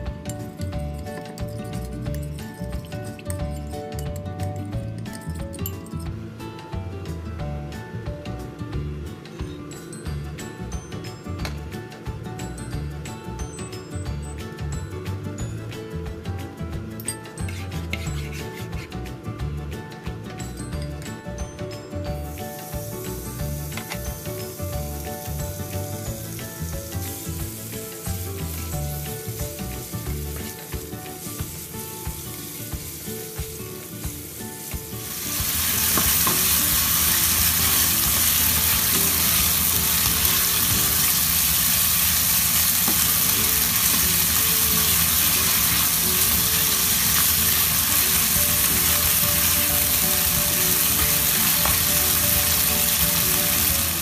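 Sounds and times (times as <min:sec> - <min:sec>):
stir-fry sizzling in hot oil: 0:00.0 - 0:05.1, 0:17.0 - 0:54.0
background music: 0:00.0 - 0:54.0.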